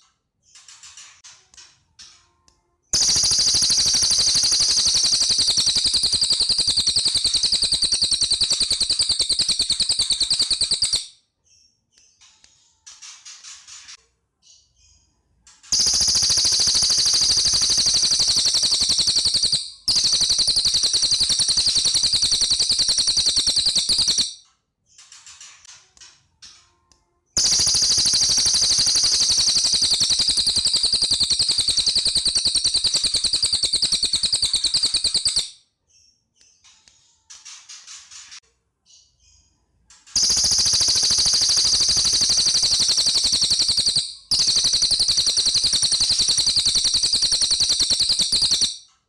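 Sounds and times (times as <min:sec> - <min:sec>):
songbird rapid trills: 0:03.0 - 0:11.0, 0:15.7 - 0:24.3, 0:27.4 - 0:35.5, 0:40.2 - 0:48.7.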